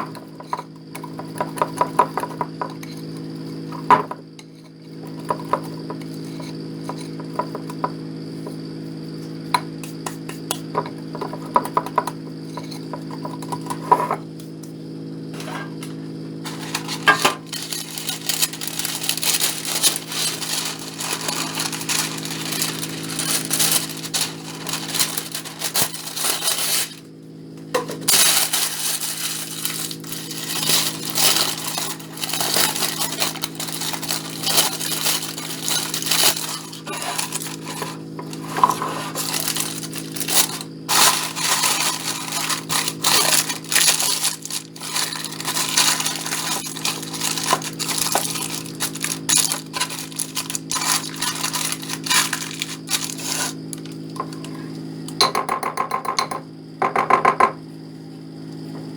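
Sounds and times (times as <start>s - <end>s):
utensils and dishes clinking: 15.4s - 27.0s, 27.8s - 54.6s, 55.2s - 57.5s
crackling clatter: 16.4s - 27.0s, 28.1s - 37.9s, 39.2s - 53.9s.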